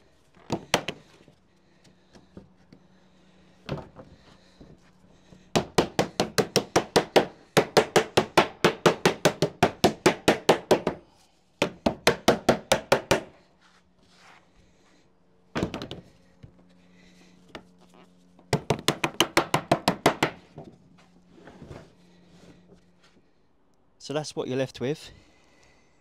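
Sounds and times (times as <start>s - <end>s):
hammer tapping on lead sheet: 5.5s - 11.0s, 11.6s - 13.3s, 18.5s - 20.4s.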